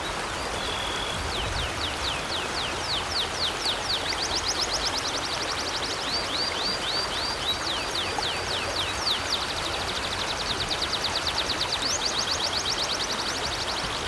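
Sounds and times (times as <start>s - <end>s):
river water flowing: 0.0s - 14.0s
songbird singing trill: 0.6s - 4.2s.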